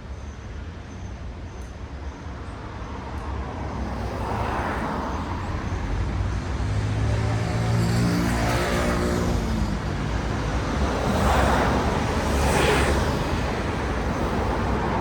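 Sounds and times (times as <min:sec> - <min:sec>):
vehicles passing on street: 0:00.5 - 0:15.0
approaching vehicle engine hum: 0:03.8 - 0:15.0.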